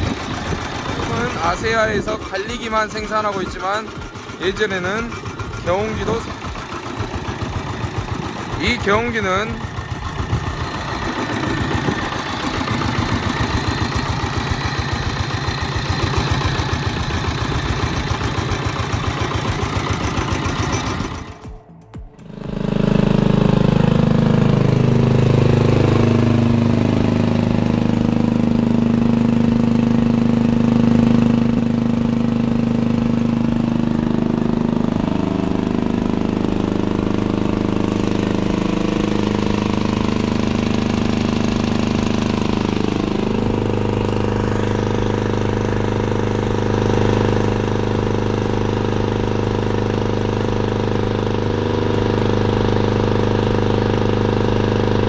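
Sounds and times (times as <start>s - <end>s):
old engine running: 0.0s - 55.0s.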